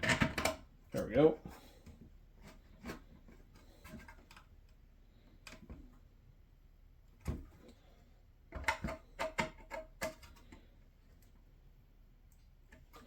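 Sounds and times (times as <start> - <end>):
plastic parts clicking and tapping: 0.0 - 1.1, 8.5 - 10.6.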